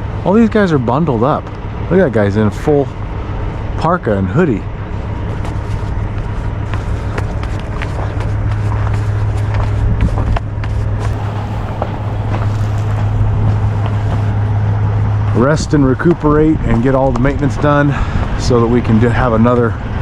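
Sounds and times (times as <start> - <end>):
diesel engine idling: 11.1 - 18.4.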